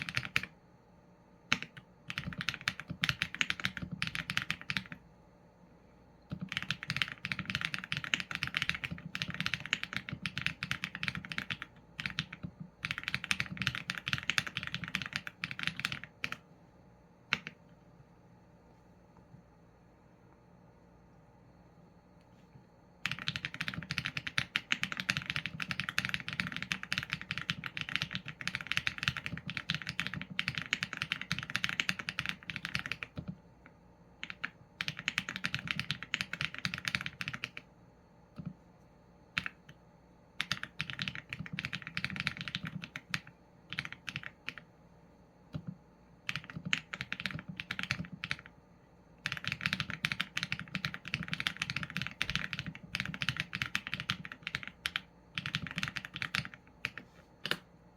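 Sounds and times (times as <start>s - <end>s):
mechanical keyboard typing: 0.0s - 0.6s, 1.5s - 5.0s, 6.3s - 16.4s, 17.3s - 17.6s, 23.0s - 33.4s, 34.2s - 37.7s, 39.3s - 39.8s, 40.4s - 44.7s, 45.5s - 48.6s, 49.2s - 57.7s.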